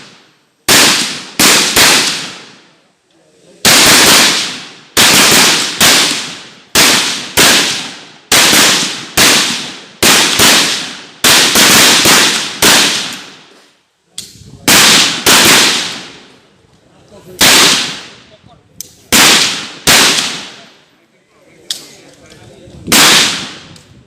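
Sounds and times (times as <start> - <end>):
rifle shots echoing: 0.0 - 2.8, 3.6 - 13.5, 14.6 - 16.3, 17.4 - 18.2, 19.1 - 20.7, 22.9 - 23.7.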